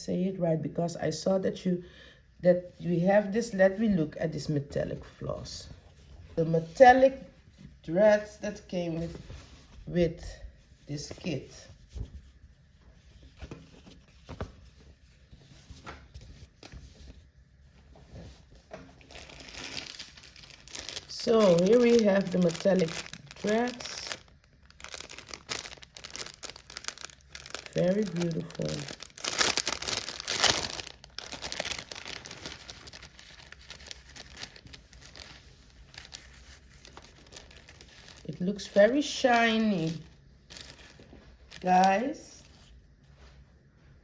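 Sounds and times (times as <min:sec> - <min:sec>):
packaging rustling and crackling: 0:17.8 - 0:42.8.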